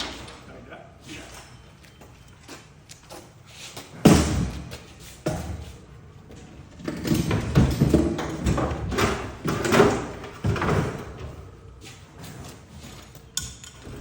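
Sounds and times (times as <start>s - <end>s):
refrigerator scraping and bumping: 6.6s - 14.0s.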